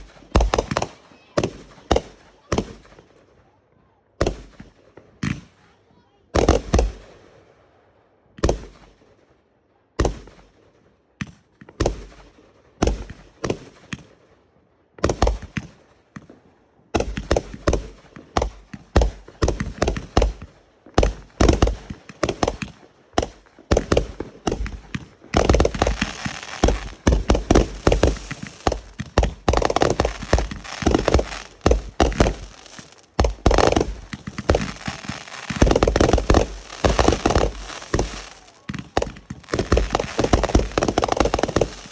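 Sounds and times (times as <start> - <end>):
fireworks crackling: 0.0 - 3.0, 17.0 - 41.9
fireworks bangs: 0.0 - 3.1, 6.4 - 7.2, 17.0 - 41.9.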